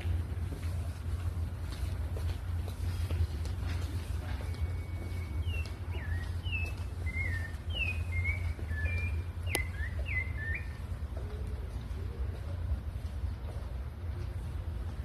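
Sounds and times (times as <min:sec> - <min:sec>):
thrush singing whistled notes: 0:04.6 - 0:10.8.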